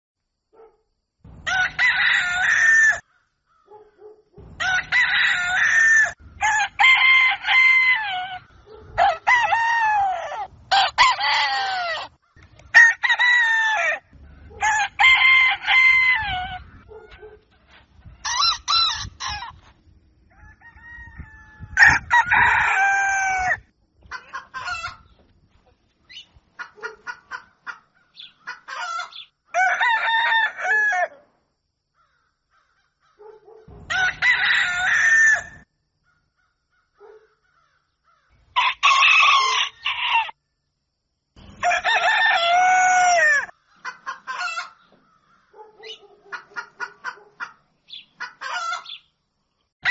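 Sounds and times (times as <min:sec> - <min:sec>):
rooster crowing: 0:01.3 - 0:03.8, 0:04.4 - 0:12.1, 0:12.7 - 0:17.4, 0:20.3 - 0:23.6, 0:28.7 - 0:31.2, 0:33.7 - 0:35.7, 0:37.6 - 0:40.4, 0:41.4 - 0:43.6.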